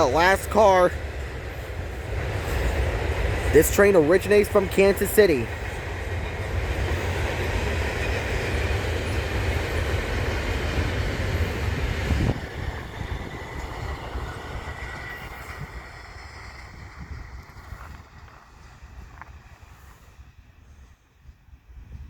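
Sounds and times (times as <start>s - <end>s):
freight train cars rumbling by: 0.0s - 22.0s.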